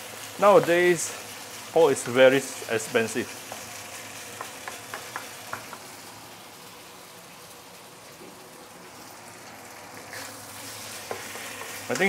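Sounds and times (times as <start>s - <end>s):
meat sizzling in hot oil: 0.0s - 12.0s
wooden spatula scraping pan: 10.1s - 12.0s.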